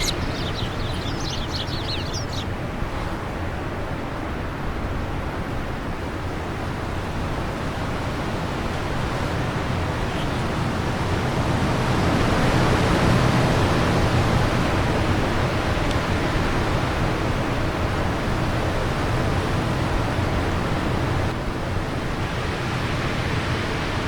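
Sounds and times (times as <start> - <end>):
wind blowing: 0.0 - 17.1.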